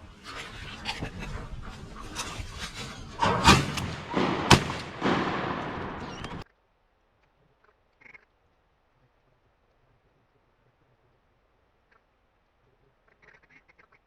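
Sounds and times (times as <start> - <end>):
steady rushing noise: 0.0 - 6.4
shotgun blasts: 1.6 - 6.4.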